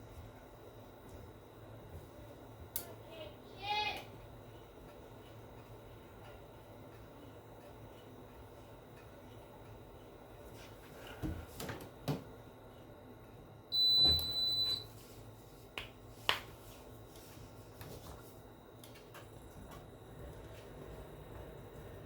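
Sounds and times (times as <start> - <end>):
faint steady hum: 0.0 - 22.0
high electronic beep: 13.8 - 14.8.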